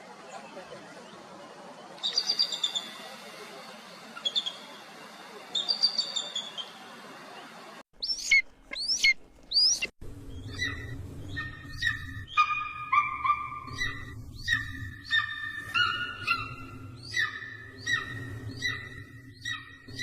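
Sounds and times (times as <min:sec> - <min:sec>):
low hum: 0:07.0 - 0:20.0
eagle high chirps: 0:08.0 - 0:20.0
repeated high clear eagle calls: 0:10.5 - 0:20.0.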